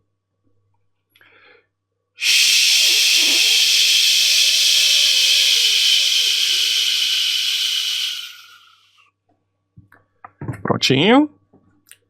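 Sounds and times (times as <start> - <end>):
man hissing with his mouth: 2.2 - 9.0.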